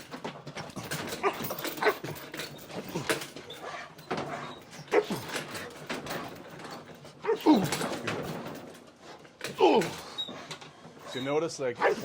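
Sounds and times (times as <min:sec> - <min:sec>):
dog whining and yelping: 0:01.0 - 0:05.6, 0:07.2 - 0:07.8, 0:11.8 - 0:12.0.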